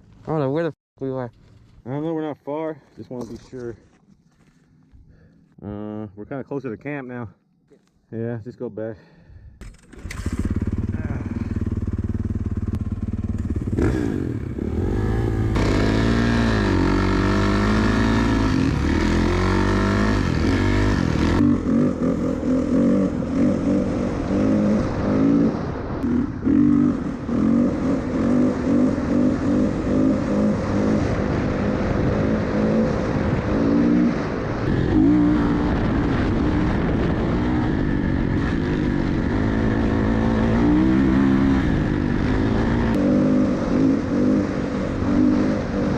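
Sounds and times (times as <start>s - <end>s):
off-road vehicle engine revving: 9.7s - 45.9s.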